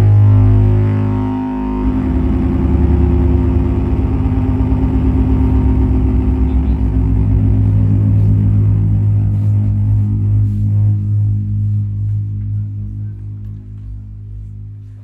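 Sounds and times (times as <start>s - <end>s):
electronic drone music: 0.0s - 15.0s.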